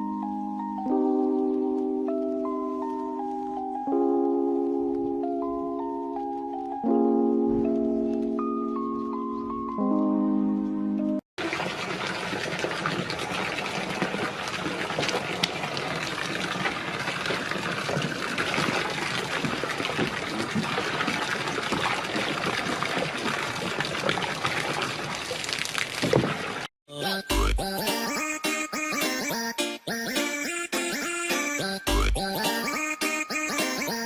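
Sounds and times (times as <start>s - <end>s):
music: 0.0s - 11.2s, 26.9s - 34.0s
faint splashes: 11.4s - 26.7s
rushing water noise: 11.4s - 26.7s.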